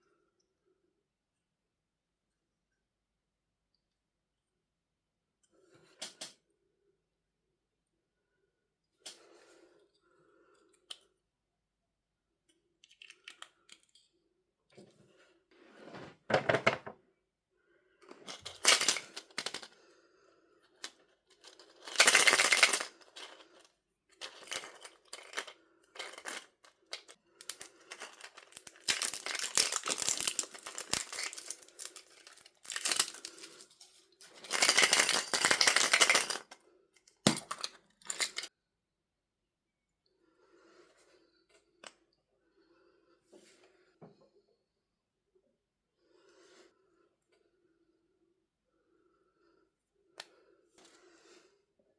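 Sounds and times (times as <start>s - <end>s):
packaging tearing and crinkling: 27.5s - 33.6s.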